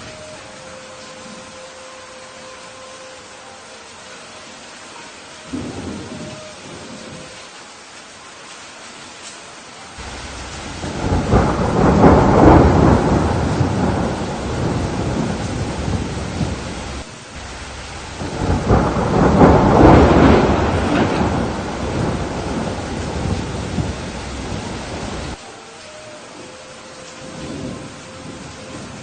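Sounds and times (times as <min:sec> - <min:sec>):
steady rain: 0:00.0 - 0:29.0
thunder rolling: 0:05.5 - 0:07.3, 0:10.0 - 0:25.4.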